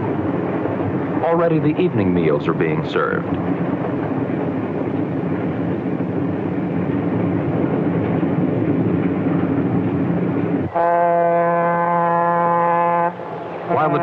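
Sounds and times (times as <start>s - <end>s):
passenger train running: 0.0s - 14.0s
train horn: 10.7s - 13.3s.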